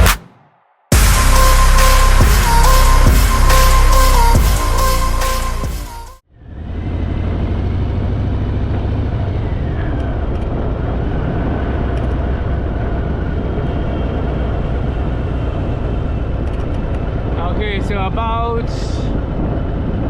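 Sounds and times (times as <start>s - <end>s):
wind noise: 9.4s - 20.0s.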